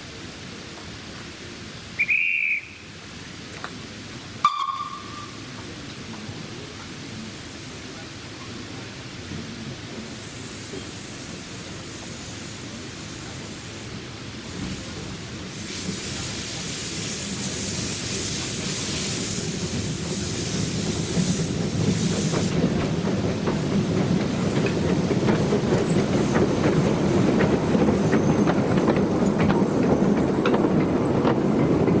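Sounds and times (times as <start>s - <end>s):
steam train running: 0.1s - 32.0s
steam hissing: 4.7s - 32.0s
wheels clicking over rail joints: 21.2s - 32.0s.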